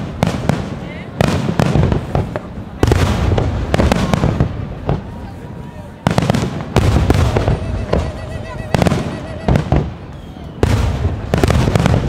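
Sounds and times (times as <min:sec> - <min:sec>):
firework shells bursting: 0:06.2 - 0:12.0.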